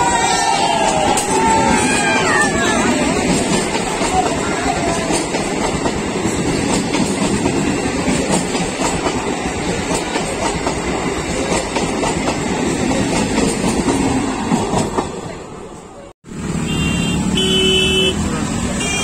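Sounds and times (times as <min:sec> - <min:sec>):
train wheels clattering: 0:00.5 - 0:15.3.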